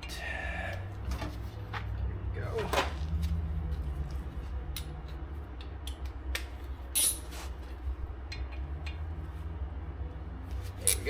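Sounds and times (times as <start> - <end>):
low hum: 0.0 - 11.0
hand tools clicking on metal: 4.1 - 7.4.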